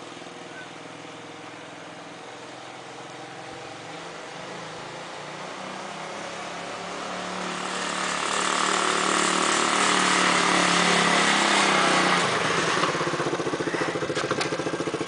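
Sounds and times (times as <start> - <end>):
small motorcycle engine revving: 3.5 - 15.0.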